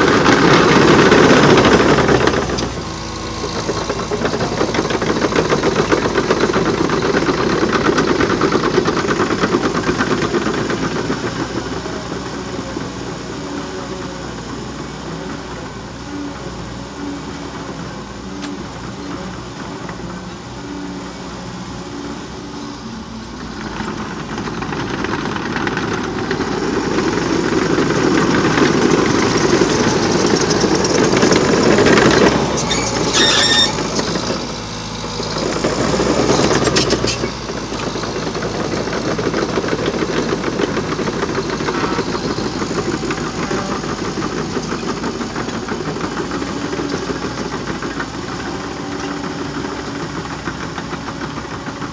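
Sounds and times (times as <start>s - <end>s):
dozer diesel engine: 0.0s - 51.9s.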